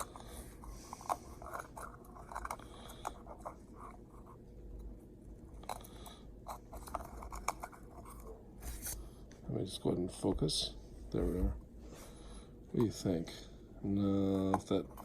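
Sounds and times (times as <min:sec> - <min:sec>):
small plastic clicks and scrapes: 0:05.6 - 0:09.0.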